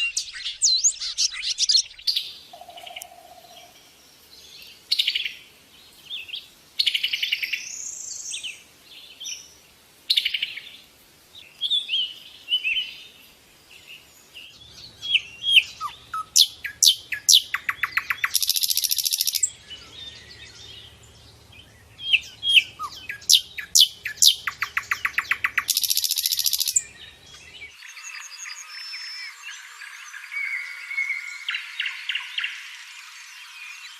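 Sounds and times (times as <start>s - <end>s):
birds whistling: 0.0s - 3.7s, 14.5s - 29.6s
buzzy bird trills: 15.8s - 19.5s, 22.5s - 26.8s.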